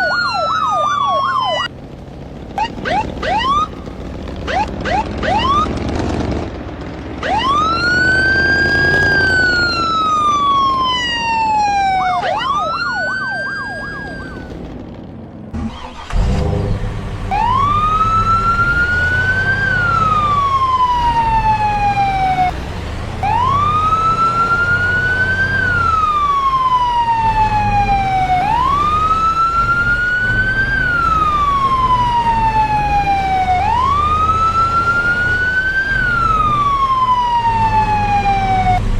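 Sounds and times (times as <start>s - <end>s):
wailing siren: 0.0s - 1.7s, 2.6s - 6.2s, 7.2s - 14.6s, 17.3s - 22.5s, 23.2s - 38.9s
low engine rumble: 0.0s - 7.6s.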